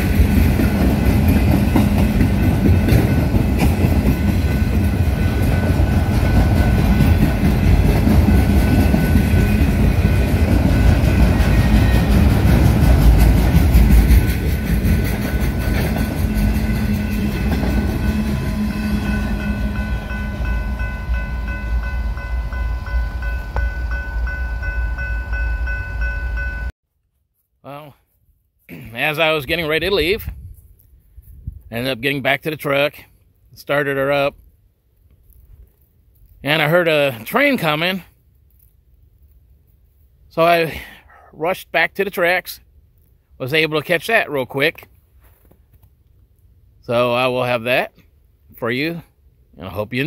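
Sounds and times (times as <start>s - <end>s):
train cars rolling on rails: 0.0s - 26.7s.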